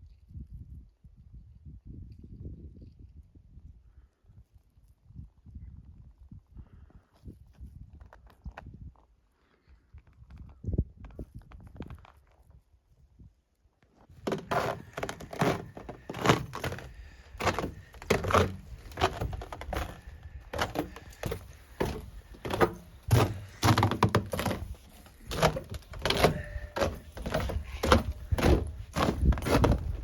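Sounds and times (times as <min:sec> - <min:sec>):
heavy footsteps walking: 0:14.2 - 0:30.0.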